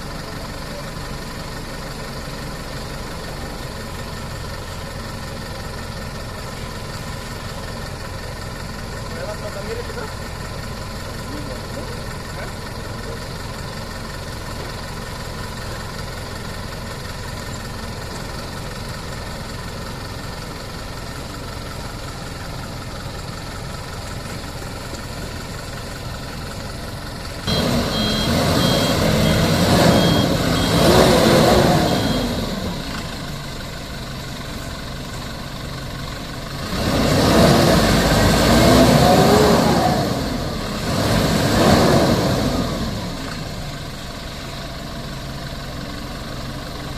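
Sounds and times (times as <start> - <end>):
diesel truck engine revving: 0.0 - 46.9
reversing beeper: 27.4 - 33.3.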